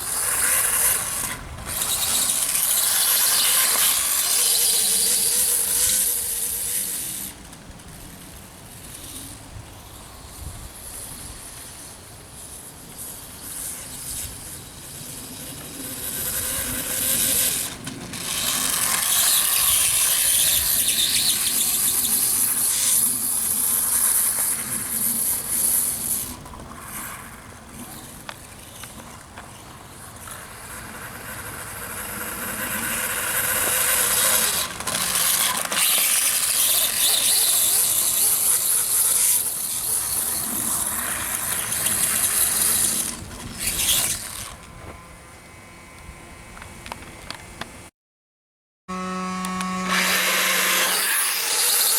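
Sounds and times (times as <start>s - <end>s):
electric motor whining: 0.0s - 7.4s, 13.4s - 27.3s, 30.3s - 47.3s, 48.9s - 51.9s.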